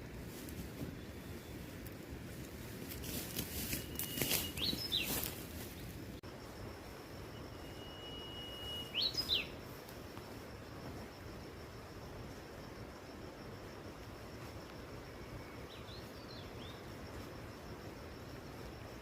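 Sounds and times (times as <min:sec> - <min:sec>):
background noise: 0:00.0 - 0:19.0
bird whistling call: 0:03.7 - 0:05.2, 0:07.6 - 0:09.5
faint high steady tone: 0:06.2 - 0:19.0.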